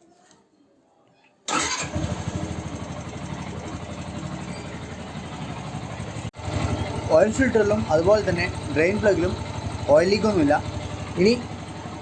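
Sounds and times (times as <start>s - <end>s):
motorcycle engine starting and idling: 1.5s - 12.0s.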